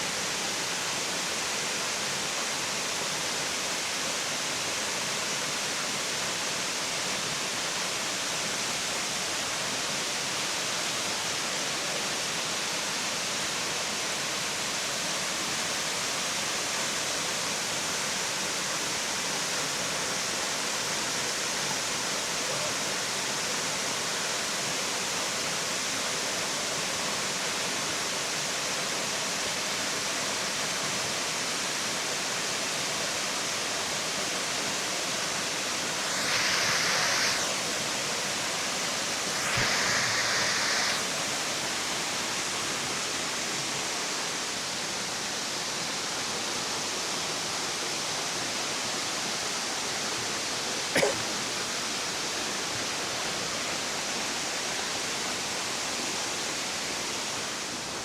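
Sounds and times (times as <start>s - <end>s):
waterfall rushing: 33.9s - 47.8s.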